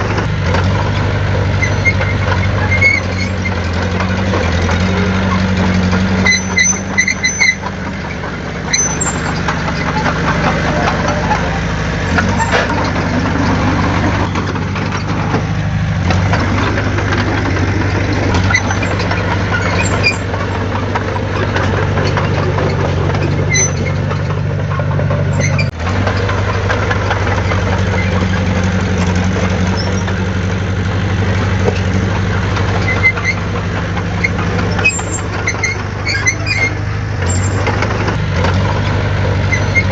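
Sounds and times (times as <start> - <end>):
heavy diesel engine running: 0.0 - 39.9
short high squeaks: 1.6 - 3.8, 6.2 - 13.5, 18.3 - 20.6, 21.4 - 24.3, 25.3 - 25.7, 34.2 - 37.9, 39.4 - 39.9.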